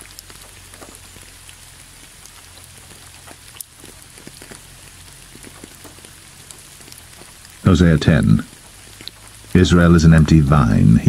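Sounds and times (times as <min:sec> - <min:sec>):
rain hissing: 0:00.0 - 0:11.0
raindrop ticks: 0:00.0 - 0:11.0.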